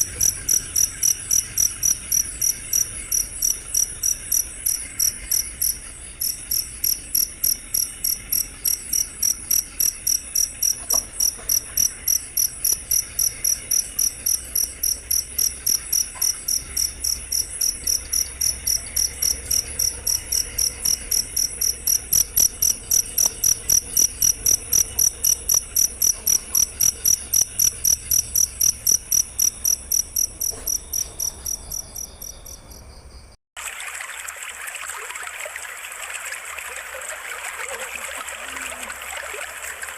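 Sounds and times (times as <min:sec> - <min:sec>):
cricket chirping: 0:00.0 - 0:33.4.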